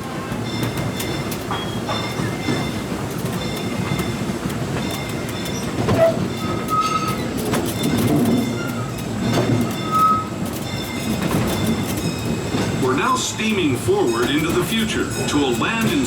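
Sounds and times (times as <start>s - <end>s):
train wheels clattering: 0.0s - 16.0s
train wheels squealing: 0.5s - 2.8s, 4.8s - 13.0s.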